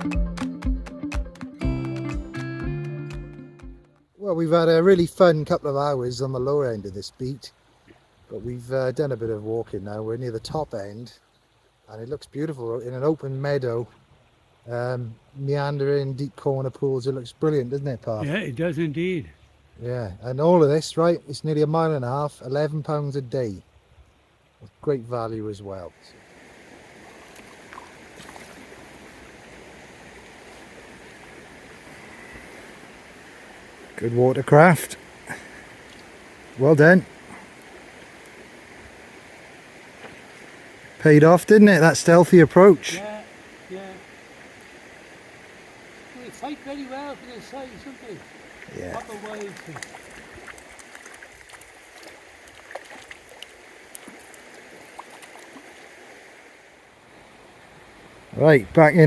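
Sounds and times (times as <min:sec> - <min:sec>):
stream flowing: 0:04.0 - 0:59.0
faint ticks and drips: 0:05.0 - 0:18.2, 0:34.0 - 0:36.4, 0:37.0 - 0:39.0, 0:45.9 - 0:56.0.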